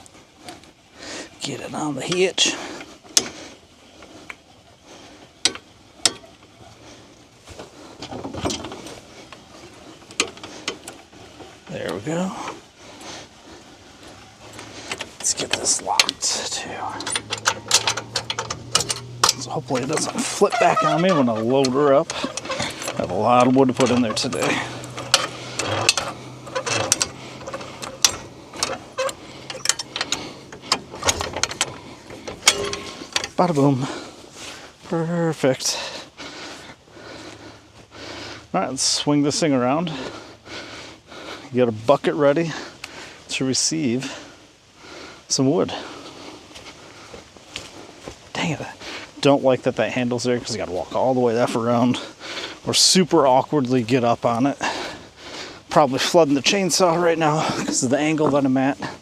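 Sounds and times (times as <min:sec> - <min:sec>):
tractor engine idling: 0:06.2 - 0:35.6, 0:52.7 - 0:59.0
sharp metal knocks: 0:22.2 - 0:33.4.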